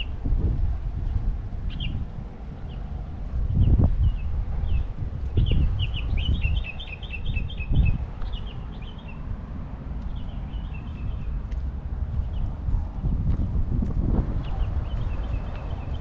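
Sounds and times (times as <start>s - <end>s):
songbird chirping: 3.5s - 9.3s, 9.9s - 12.6s
low rumbling thuds: 11.0s - 15.3s.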